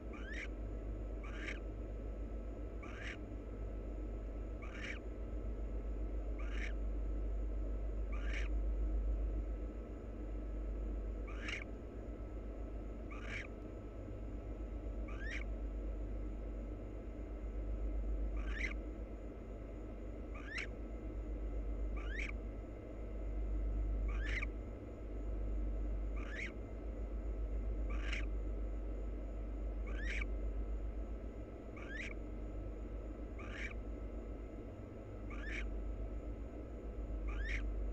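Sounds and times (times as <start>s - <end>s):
owl rising call: 0.0s - 0.6s, 1.2s - 1.6s, 2.8s - 3.2s, 4.6s - 5.1s, 6.4s - 6.8s, 8.1s - 8.5s, 11.2s - 11.7s, 13.1s - 13.5s, 15.1s - 15.5s, 18.4s - 18.8s, 20.3s - 20.8s, 22.0s - 22.4s, 24.1s - 24.5s, 26.2s - 26.6s, 27.9s - 28.3s, 29.8s - 30.3s, 31.8s - 32.2s, 33.4s - 33.8s, 35.3s - 35.7s, 37.2s - 37.7s
steady low hum: 0.0s - 37.9s.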